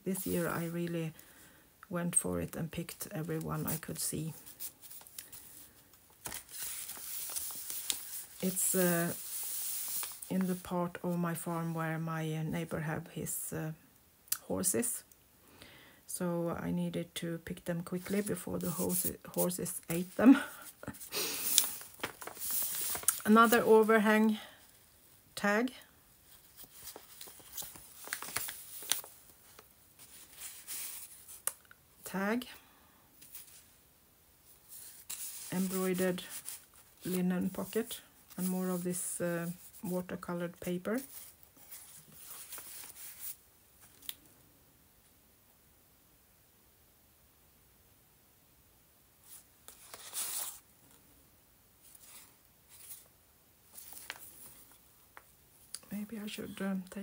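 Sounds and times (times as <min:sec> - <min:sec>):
paper rustling: 0:03.6 - 0:10.7, 0:18.0 - 0:24.0, 0:26.3 - 0:31.6, 0:34.7 - 0:40.2, 0:41.0 - 0:44.2, 0:49.2 - 0:50.6, 0:51.8 - 0:53.1, 0:53.7 - 0:54.8.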